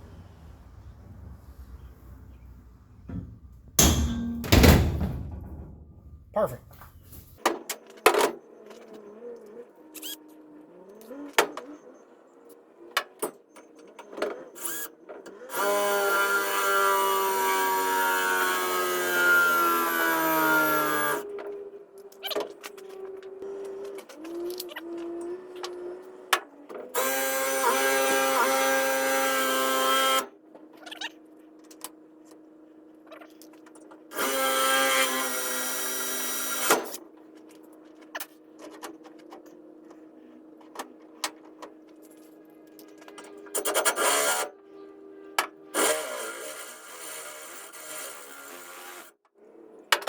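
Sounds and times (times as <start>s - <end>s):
electric drill whining through metal: 14.6s - 21.3s, 26.9s - 30.3s, 34.1s - 37.0s, 45.8s - 49.1s.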